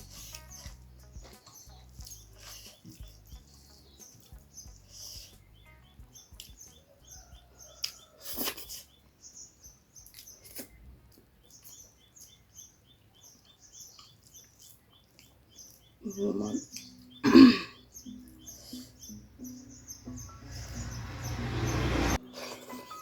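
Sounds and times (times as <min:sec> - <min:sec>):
chewing: 0:00.0 - 0:04.5, 0:06.3 - 0:09.0, 0:10.0 - 0:12.5, 0:13.4 - 0:16.0
crunch: 0:10.0 - 0:12.4.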